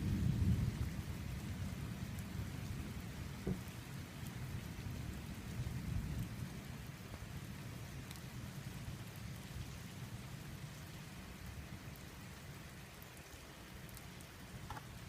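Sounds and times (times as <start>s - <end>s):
thunder rumbling: 0.0s - 4.1s
rain hissing: 0.0s - 15.0s
brief knock: 3.4s - 3.6s.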